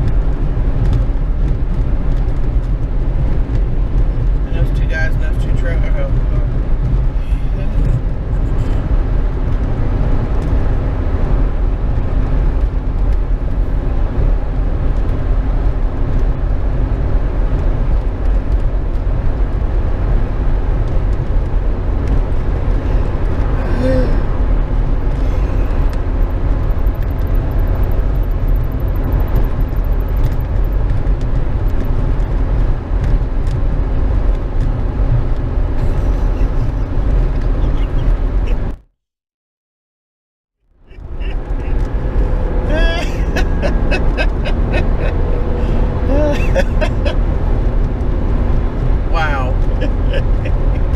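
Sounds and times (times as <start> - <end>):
highway traffic rumble: 0.0 - 38.8, 40.7 - 50.9.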